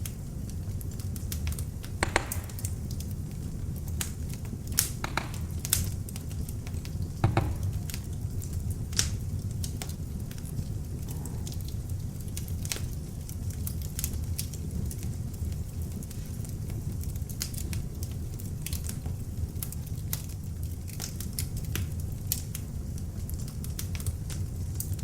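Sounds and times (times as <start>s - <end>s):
fire flames rumbling: 0.0s - 25.0s
fire popping and crackling: 0.0s - 25.0s.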